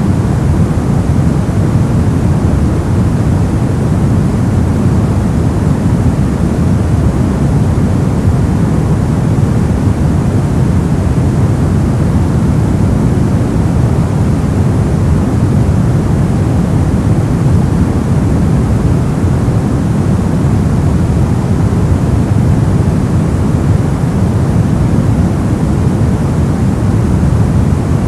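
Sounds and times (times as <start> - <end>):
brown noise rumbling hiss: 0.0 - 28.0.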